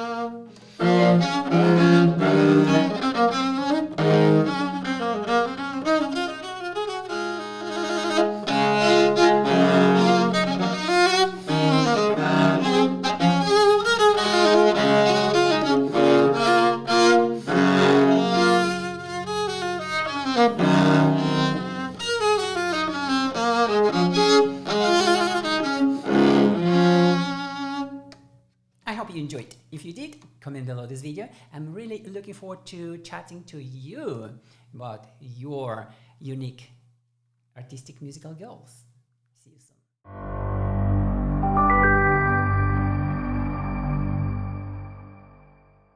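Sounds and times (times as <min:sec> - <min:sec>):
bowed cello runs: 0:00.8 - 0:28.0, 0:40.1 - 0:45.2.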